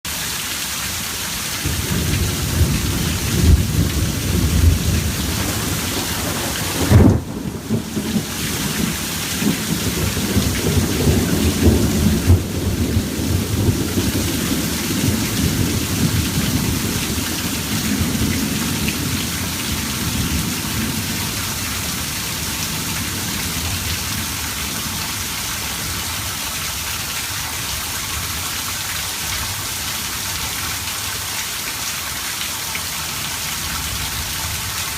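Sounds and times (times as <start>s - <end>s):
heavy rain: 0.0s - 34.9s
loud thunderclap: 1.6s - 21.2s
rolling thunder: 1.6s - 25.0s.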